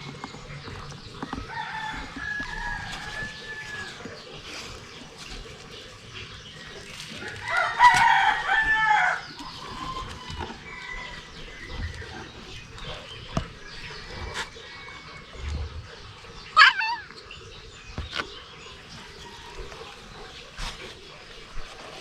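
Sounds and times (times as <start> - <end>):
rooster crowing: 1.5 - 4.1, 7.4 - 11.7.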